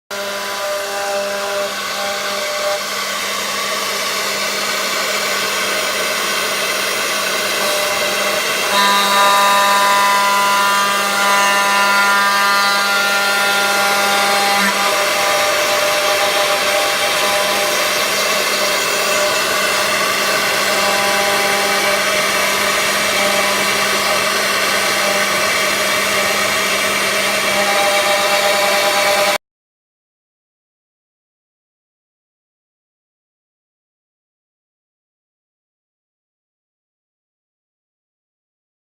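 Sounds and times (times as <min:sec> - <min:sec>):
cnc router spindle whine: 0:00.1 - 0:29.4
cutting hiss: 0:01.7 - 0:11.4, 0:13.9 - 0:28.5.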